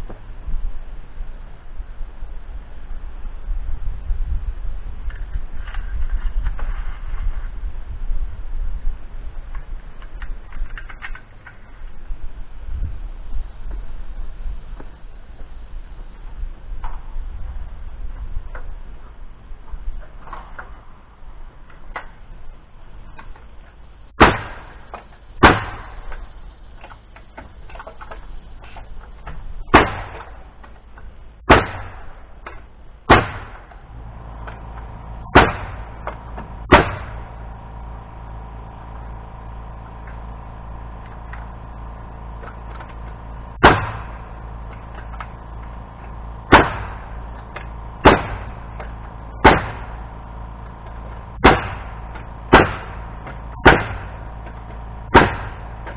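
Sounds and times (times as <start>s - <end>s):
steady machine hum: 20.7s - 55.9s.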